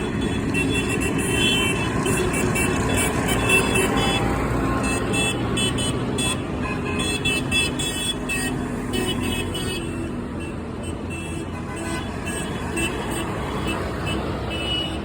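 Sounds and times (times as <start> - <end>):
tractor engines rumbling: 0.0 - 15.0.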